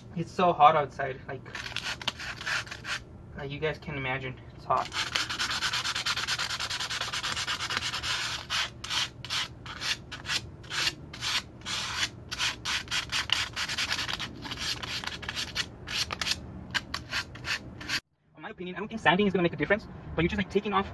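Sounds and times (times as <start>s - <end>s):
sandpaper scratching metal: 1.5s - 3.0s, 4.8s - 18.0s.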